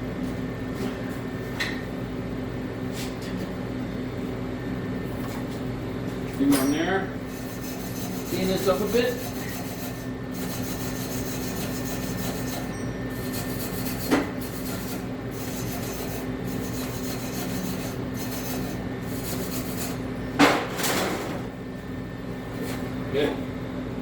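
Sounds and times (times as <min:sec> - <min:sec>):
steel being scrubbed: 0:07.3 - 0:12.6, 0:13.2 - 0:20.0.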